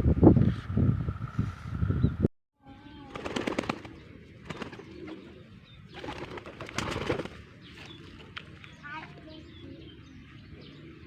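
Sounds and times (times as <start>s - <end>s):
pigeons cooing: 2.9s - 8.4s.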